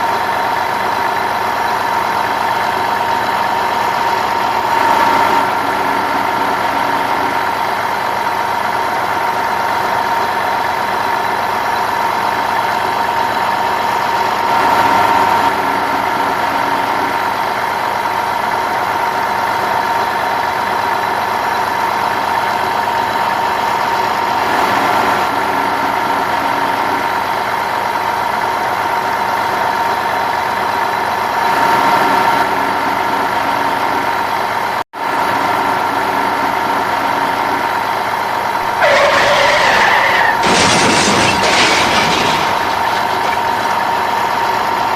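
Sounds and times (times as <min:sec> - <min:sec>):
engine idling: 0:00.0 - 0:44.9.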